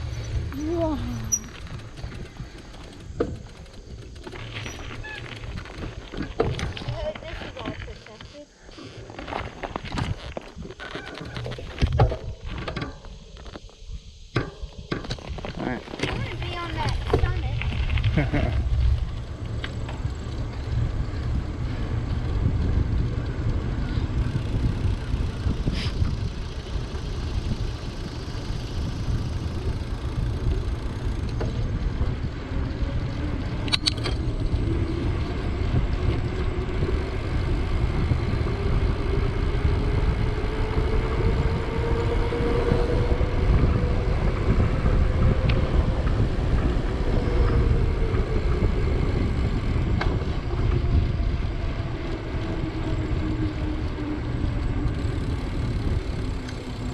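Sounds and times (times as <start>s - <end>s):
bicycle tyre noise: 0.0s - 56.9s
wind buffeting microphone: 13.8s - 56.9s.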